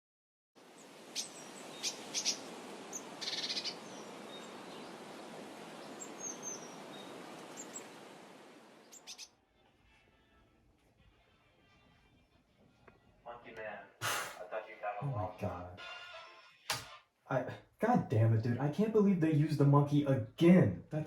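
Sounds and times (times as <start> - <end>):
outdoor background hiss: 0.6 - 12.2
birds chirping: 0.7 - 9.4.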